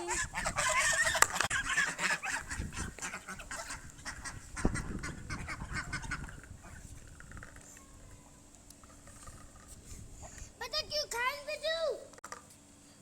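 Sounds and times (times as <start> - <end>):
ducks quacking: 0.0 - 6.9.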